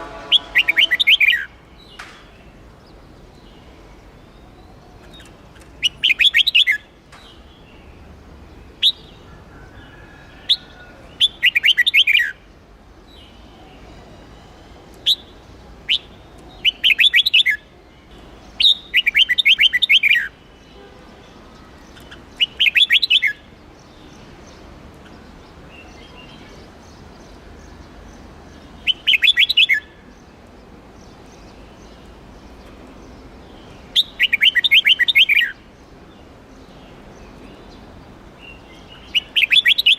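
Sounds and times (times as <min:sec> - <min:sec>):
bird warbling: 0:00.0 - 0:01.5.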